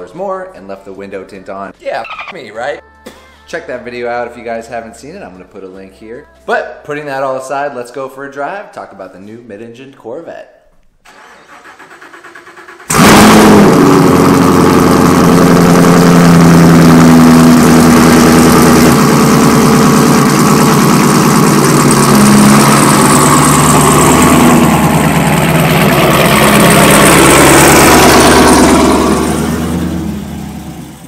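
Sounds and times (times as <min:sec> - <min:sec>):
car engine starting and idling: 0:11.1 - 0:31.0.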